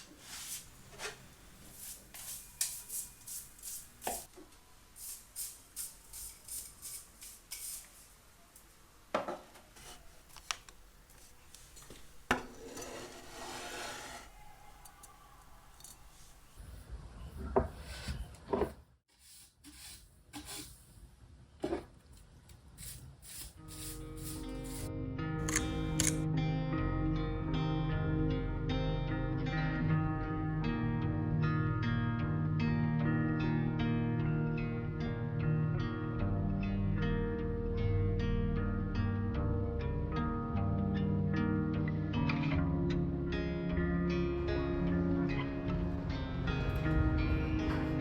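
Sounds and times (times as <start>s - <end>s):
rubbing or brushing strokes: 0.0s - 4.3s, 12.6s - 14.4s.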